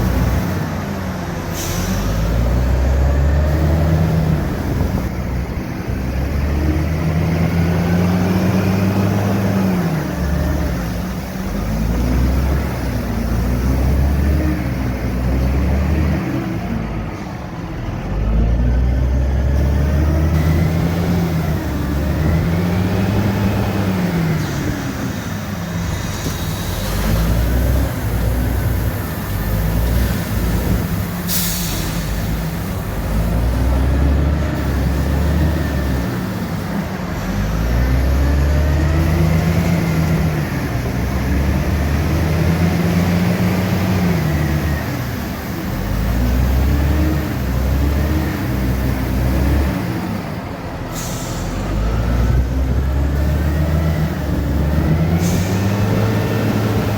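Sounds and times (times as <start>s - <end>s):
diesel truck engine through gears: 0.0s - 56.9s
air hiss: 1.5s - 2.2s, 25.2s - 33.2s, 50.9s - 51.8s.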